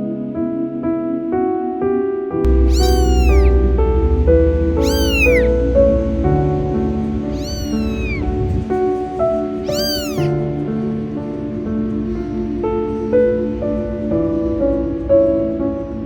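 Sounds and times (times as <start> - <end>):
cat meowing: 2.5 - 3.6, 4.8 - 5.6, 7.3 - 8.7, 9.6 - 10.4.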